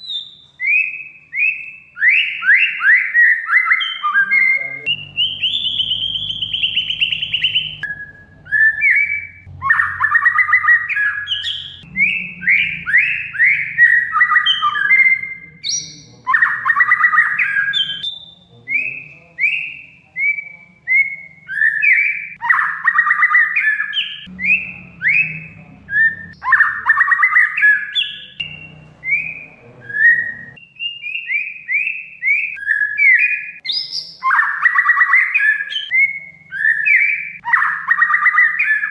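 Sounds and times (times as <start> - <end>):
bird singing: 0.0 - 38.9
harsh rasping bird chatter: 3.6 - 18.6, 22.5 - 30.6
faint low hum: 4.3 - 16.5, 24.3 - 27.2, 28.2 - 30.6.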